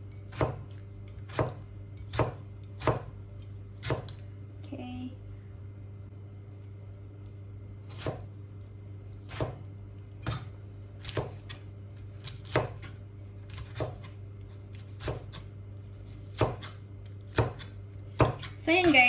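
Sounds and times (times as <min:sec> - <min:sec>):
knife chopping on cutting board: 0:00.1 - 0:03.2, 0:03.8 - 0:04.2, 0:07.9 - 0:08.3, 0:09.3 - 0:19.0.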